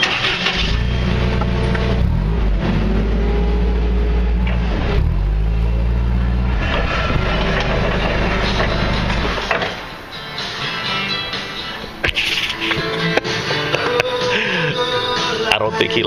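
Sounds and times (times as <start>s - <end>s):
backhoe engine droning: 0.0s - 10.9s.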